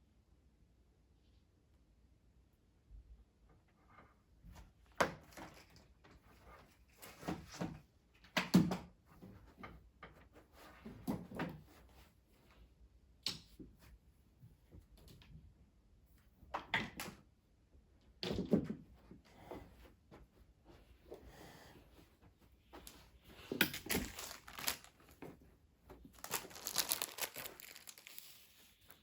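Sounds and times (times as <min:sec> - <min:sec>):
household knocks and clatters: 0:22.7 - 0:28.1.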